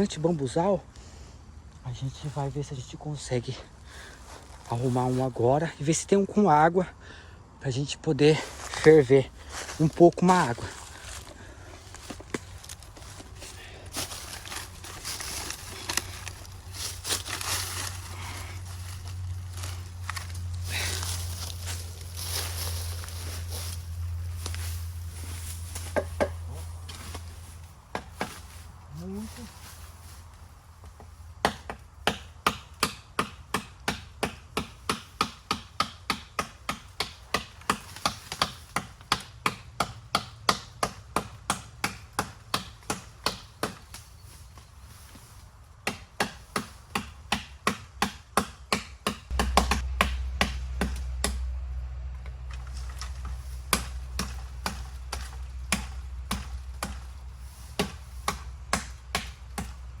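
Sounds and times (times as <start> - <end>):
blade chopping bamboo: 27.9 - 28.5, 31.4 - 44.1, 45.8 - 51.5, 52.5 - 60.0.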